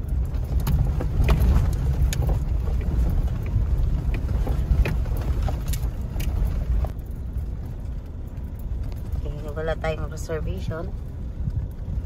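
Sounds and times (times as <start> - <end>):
engine and road rumble: 0.0 - 12.0
light clicks and rattles: 0.0 - 12.0.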